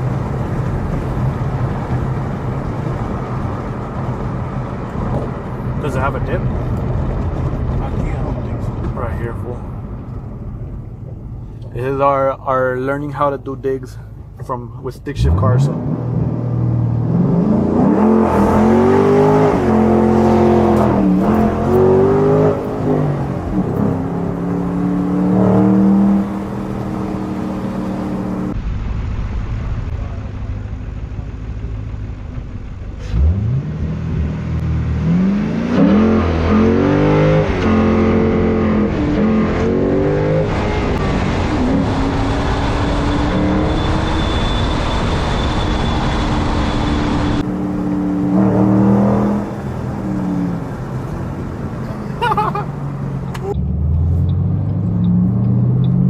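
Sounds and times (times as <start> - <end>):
car engine accelerating through gears: 15.2 - 28.6, 32.4 - 56.0.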